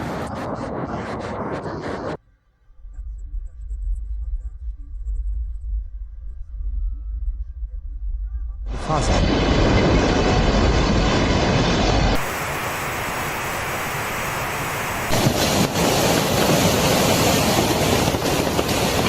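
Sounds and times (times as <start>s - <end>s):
wind buffeting microphone: 0.0s - 2.2s, 15.0s - 19.0s
rushing water: 12.2s - 19.0s.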